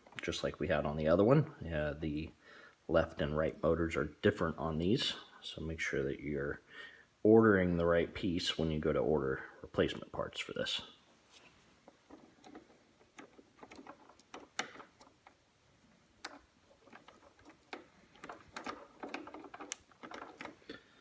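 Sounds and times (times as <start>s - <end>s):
hands handling plastic parts: 11.3s - 21.0s.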